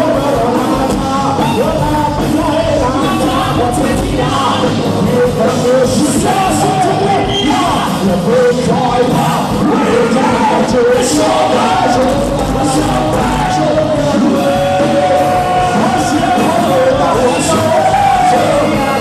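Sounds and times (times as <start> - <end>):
live rock band music: 0.0 - 19.0
person singing: 0.0 - 19.0.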